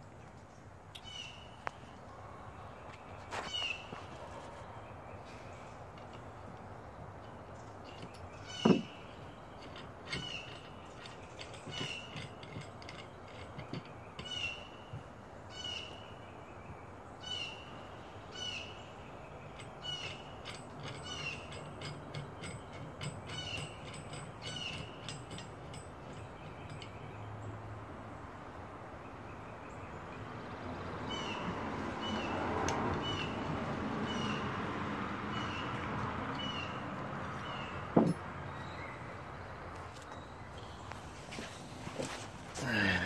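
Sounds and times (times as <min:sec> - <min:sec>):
clamp screw squeaking: 0:07.9 - 0:14.7, 0:19.5 - 0:27.1.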